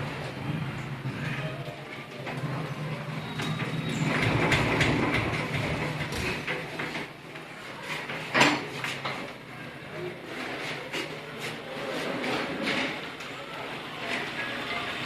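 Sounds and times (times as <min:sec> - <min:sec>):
motorcycle engine idling and revving: 0:02.4 - 0:06.2.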